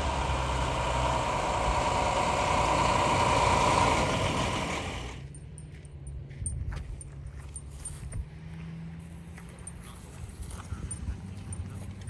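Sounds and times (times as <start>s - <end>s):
vehicle engine idling: 0.0s - 6.4s.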